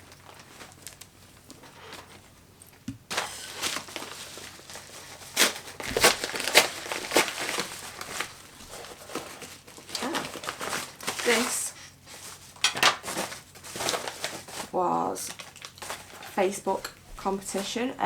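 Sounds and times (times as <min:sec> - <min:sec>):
packaging crinkling and rustling: 0:00.0 - 0:02.3, 0:03.1 - 0:17.8
packaging tearing: 0:03.1 - 0:11.6, 0:13.0 - 0:14.7, 0:15.3 - 0:16.1.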